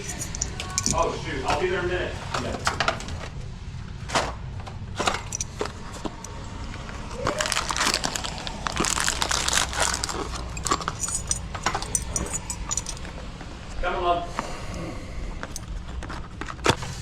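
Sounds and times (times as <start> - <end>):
small hardware clicks and knocks: 0.0 - 1.0, 10.6 - 13.2
rustling and crinkling: 4.1 - 13.8, 15.4 - 17.0.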